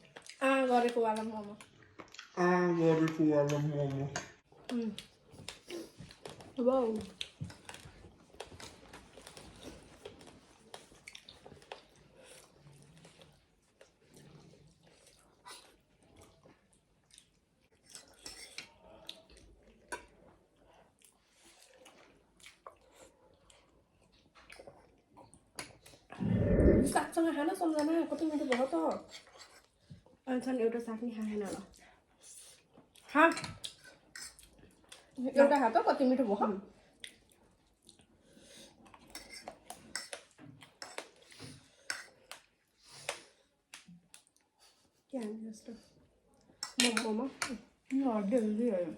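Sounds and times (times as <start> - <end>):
chewing and eating: 0.0 - 27.0, 31.1 - 35.7, 36.7 - 48.6
small clicks and smacks: 0.1 - 2.4, 3.1 - 11.9, 39.1 - 41.3, 41.9 - 44.4, 46.6 - 48.5
cutlery clinking on dishes: 46.6 - 47.2.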